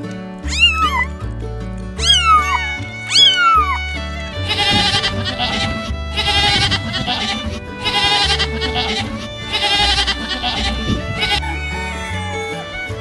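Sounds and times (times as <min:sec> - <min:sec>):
background music: 0:00.0 - 0:13.0
short high animal calls: 0:00.4 - 0:01.1, 0:02.0 - 0:03.8
goat bleating: 0:00.4 - 0:01.2, 0:02.0 - 0:13.0.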